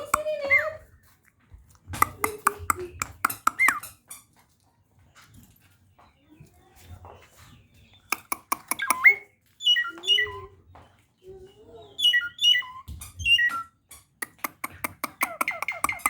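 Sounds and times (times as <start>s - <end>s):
starling calling: 2.0s - 4.0s, 8.0s - 10.5s, 11.9s - 16.0s.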